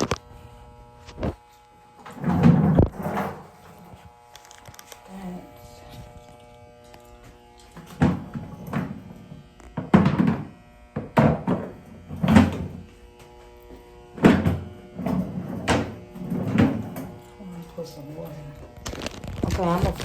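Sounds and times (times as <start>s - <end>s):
hard objects knocking and thumping: 9.8s - 12.7s.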